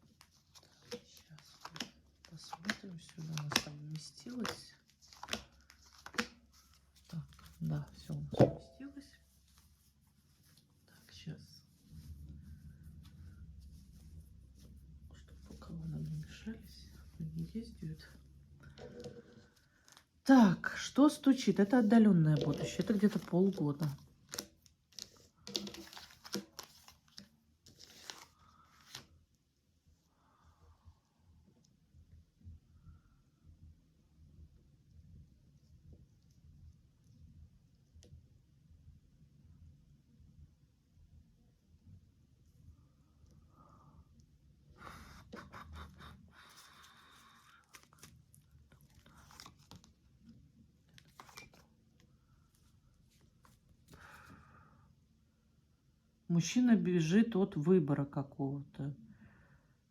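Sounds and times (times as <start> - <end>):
cards clicking and rustling: 0.2 - 7.6, 22.4 - 29.2, 46.5 - 50.3, 50.9 - 51.8.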